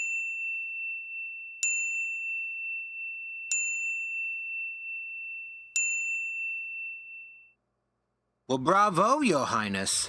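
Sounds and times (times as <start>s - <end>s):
high bell-like chime: 0.0s - 7.6s.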